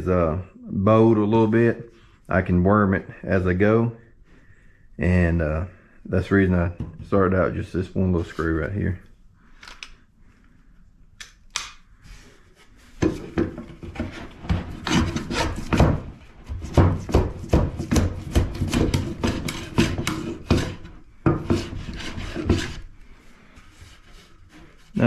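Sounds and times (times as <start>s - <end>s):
hand plane shaving wood: 13.0s - 25.0s.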